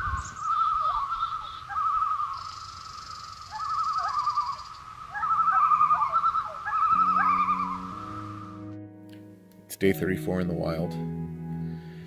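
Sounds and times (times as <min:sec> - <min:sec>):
warbling bird calls: 0:00.0 - 0:08.6.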